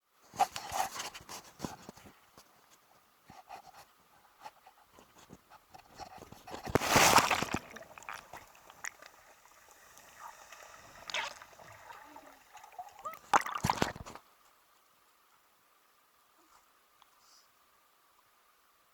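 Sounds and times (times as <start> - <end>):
sea water lapping: 6.0 - 14.2
light splashing: 6.2 - 14.2
person diving into water: 6.3 - 14.2.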